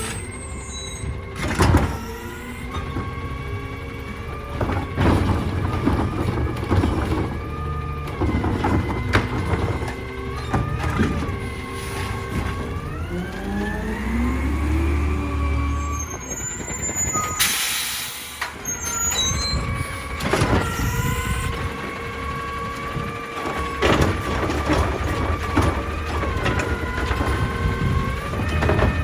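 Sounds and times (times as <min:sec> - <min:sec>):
garbage truck engine whining: 0:00.0 - 0:29.0
air brake hissing: 0:17.4 - 0:18.5.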